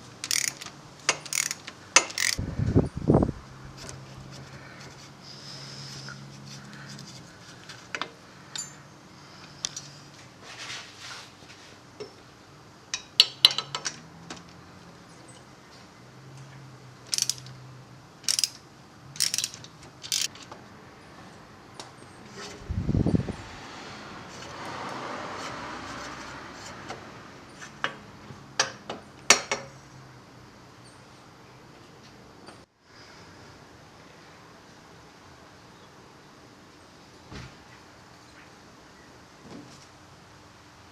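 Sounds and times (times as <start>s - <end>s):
metallic clicks and clinks: 0.2s - 2.4s, 17.1s - 17.6s, 18.2s - 20.5s.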